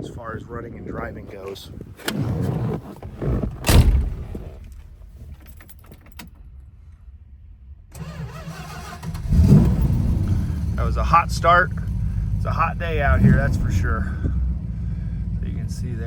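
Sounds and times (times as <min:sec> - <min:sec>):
car engine starting and running: 0:01.3 - 0:16.0
loud thumps: 0:02.0 - 0:06.1.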